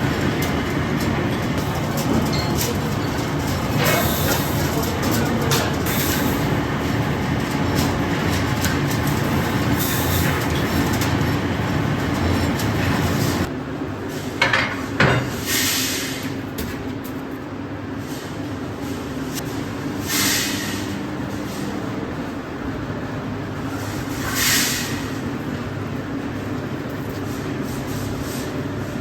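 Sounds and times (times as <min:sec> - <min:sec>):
metalworking machinery noise: 0:00.0 - 0:29.0.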